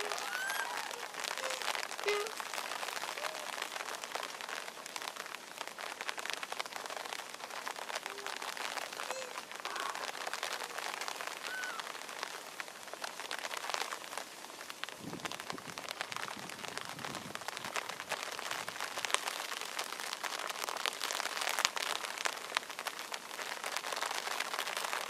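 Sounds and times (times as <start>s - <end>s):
short rising and falling calls: 0.0s - 2.4s
rain pattering on foliage: 0.0s - 25.0s.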